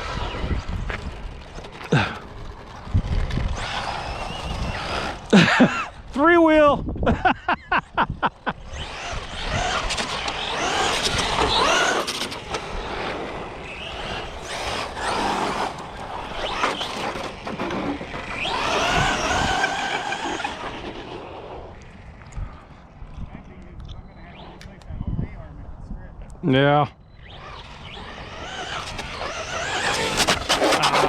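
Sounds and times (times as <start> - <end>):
tyre noise on asphalt: 0.0 - 6.2, 8.8 - 23.2, 27.2 - 31.0
rc car motor whine: 0.0 - 6.3, 8.4 - 23.0, 27.1 - 31.0.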